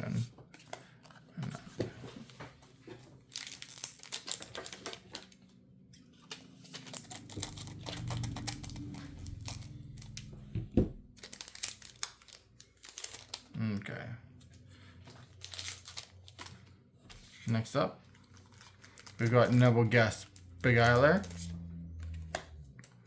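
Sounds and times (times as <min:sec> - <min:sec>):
plastic wrapper crinkling and tearing: 0:03.2 - 0:10.4, 0:11.1 - 0:13.8, 0:15.0 - 0:23.0.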